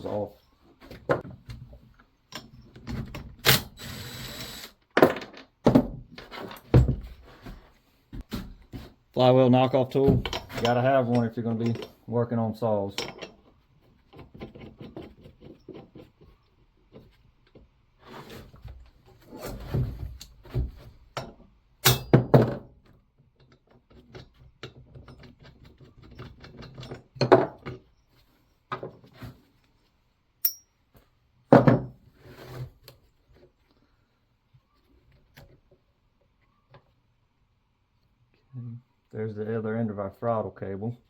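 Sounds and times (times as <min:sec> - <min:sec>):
tools clinking: 0:10.2 - 0:12.0, 0:13.0 - 0:13.5, 0:30.4 - 0:30.8
hammer striking metal tool: 0:21.8 - 0:22.2, 0:30.4 - 0:30.7.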